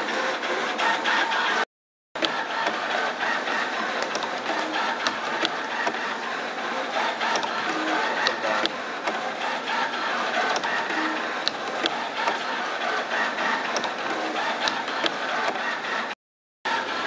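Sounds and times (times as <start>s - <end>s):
servo motors whining: 2.2s - 17.0s
machine tooling clicking: 3.8s - 6.2s, 7.1s - 9.2s.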